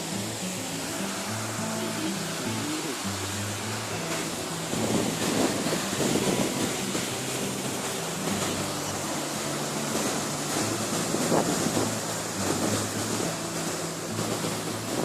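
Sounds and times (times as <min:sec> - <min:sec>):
background music low notes: 0:00.0 - 0:15.0
river and waterfall rushing: 0:00.0 - 0:15.0.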